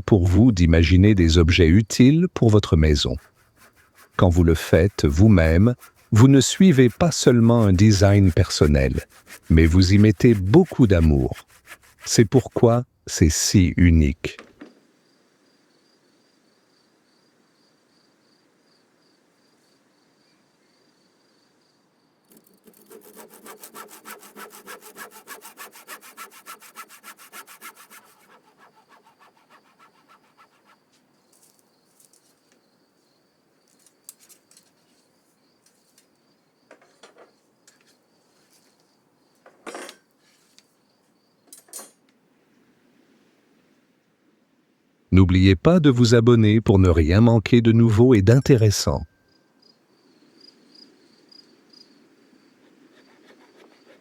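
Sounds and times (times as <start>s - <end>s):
hand saw cutting wood: 2.9s - 12.8s, 22.3s - 31.6s, 52.6s - 54.0s.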